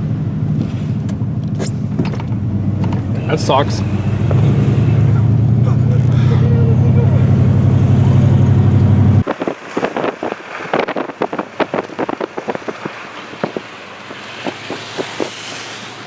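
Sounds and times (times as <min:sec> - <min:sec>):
vehicle engine running: 0:00.0 - 0:16.0
crunching clicks and crackles: 0:09.2 - 0:15.9.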